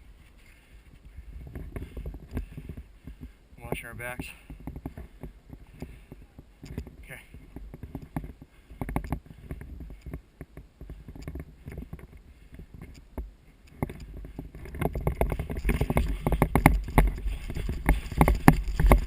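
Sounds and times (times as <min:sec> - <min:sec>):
gear jostling: 0:00.0 - 0:19.0
footsteps crunching through dry brush: 0:15.1 - 0:19.0.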